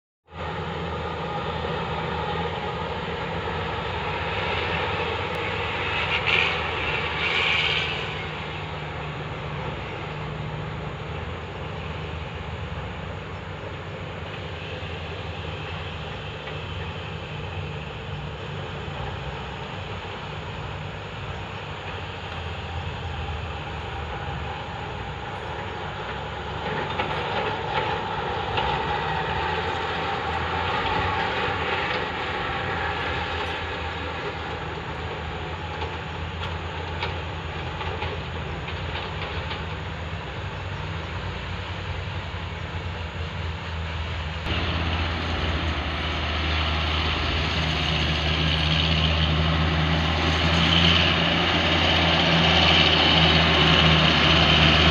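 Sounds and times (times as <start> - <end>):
heavy vehicle engine running: 0.3 - 54.9
rattling clattering noise: 26.0 - 32.3.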